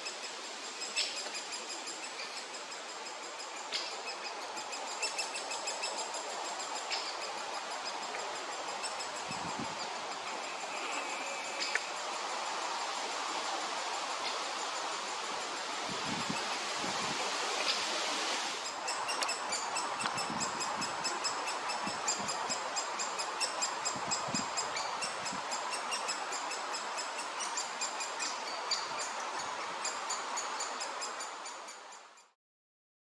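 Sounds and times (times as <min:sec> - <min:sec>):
steady background hiss: 0:00.0 - 0:32.4
woodpecker chicks begging calls: 0:08.8 - 0:11.9.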